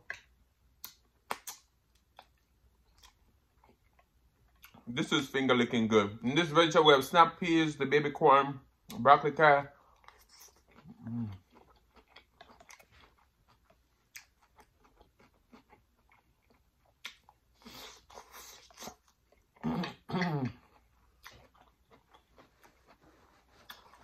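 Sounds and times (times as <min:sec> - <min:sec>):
wet mouth clicks: 0:00.0 - 0:02.4
chewing vegetables: 0:00.0 - 0:05.3, 0:09.6 - 0:24.0.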